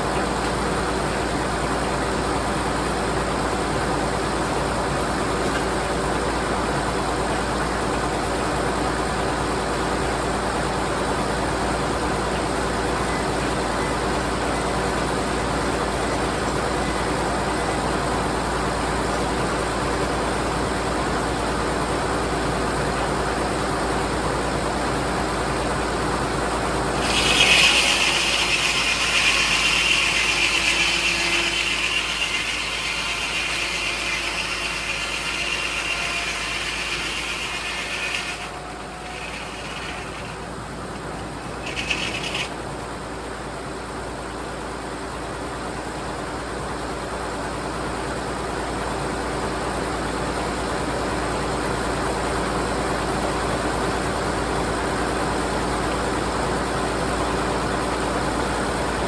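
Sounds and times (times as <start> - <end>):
saw blade cutting log: 0.0 - 17.0, 26.5 - 43.4
sawmill running: 0.0 - 59.0.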